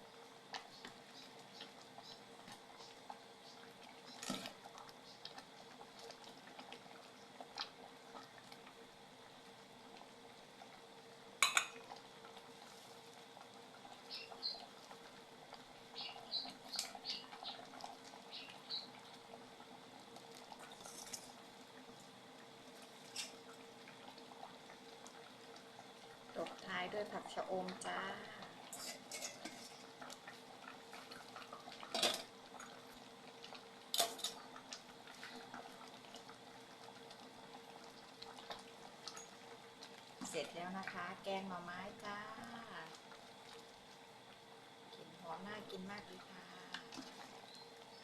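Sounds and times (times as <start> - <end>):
curry simmering: 0.0 - 48.0
utensils clinking against pot: 28.7 - 29.8, 34.0 - 34.4.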